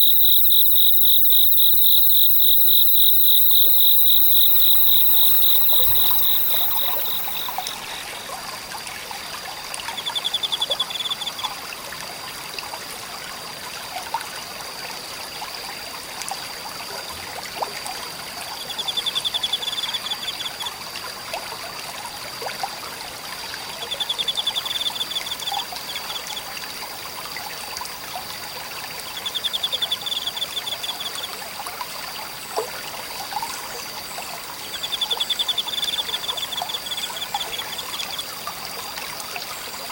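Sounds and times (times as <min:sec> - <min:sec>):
high insect trill: 0:00.0 - 0:08.0
pulsed insect call: 0:00.0 - 0:08.0, 0:27.6 - 0:31.4, 0:33.2 - 0:39.9
stream trickling and burbling: 0:00.0 - 0:39.9.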